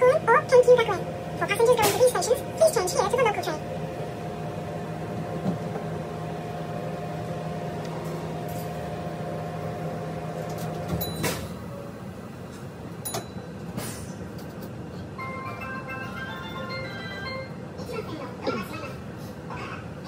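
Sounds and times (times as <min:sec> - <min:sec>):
train running hum: 0:00.0 - 0:20.0.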